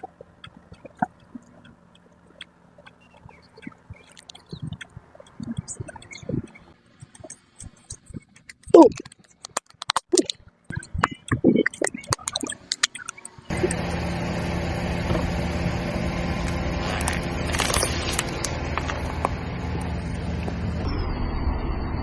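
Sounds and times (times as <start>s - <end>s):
sharp clicks and crackles: 0.0s - 13.8s, 16.4s - 19.4s
car engine running: 12.0s - 22.0s.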